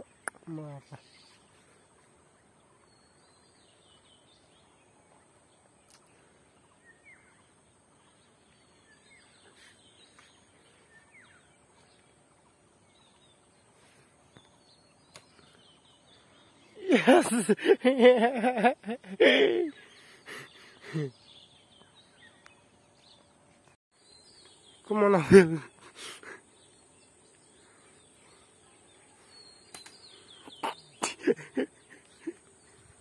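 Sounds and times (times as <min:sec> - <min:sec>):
faint bird chirps: 0:00.0 - 0:17.8, 0:19.2 - 0:33.0
faint clicks: 0:05.8 - 0:06.2, 0:29.7 - 0:30.0.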